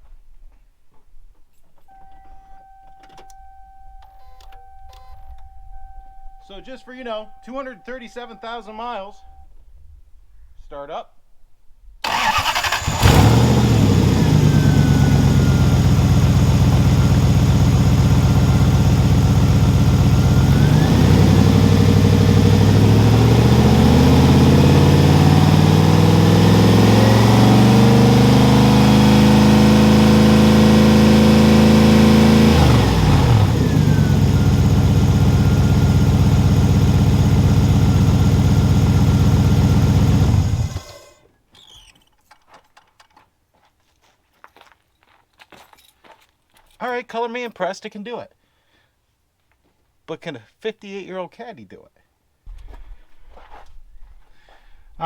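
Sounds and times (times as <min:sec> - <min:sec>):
car engine cranking: 0:12.0 - 0:41.8
car engine idling and revving: 0:12.1 - 0:41.0.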